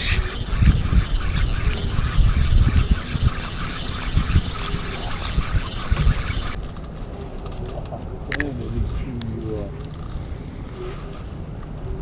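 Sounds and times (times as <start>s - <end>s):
fishing reel ticking: 0.0s - 6.6s
wind buffeting microphone: 0.0s - 7.4s.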